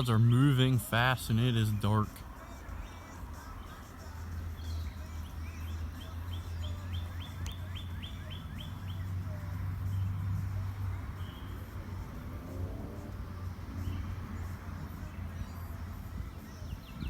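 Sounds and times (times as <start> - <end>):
bird singing descending notes: 4.5 - 10.2, 11.1 - 13.0.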